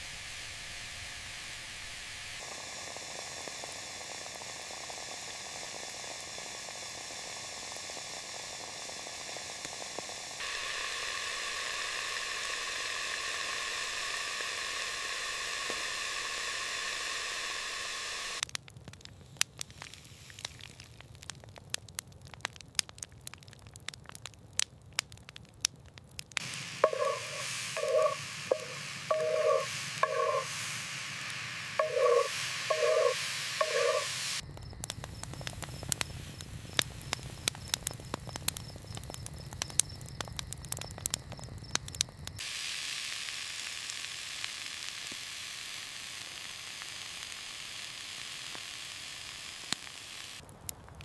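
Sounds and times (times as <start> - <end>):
sizzling hiss: 0.0 - 18.5, 19.1 - 21.4, 26.4 - 51.0
campfire crackling and popping: 2.4 - 51.0
pulsing tones: 26.4 - 34.4.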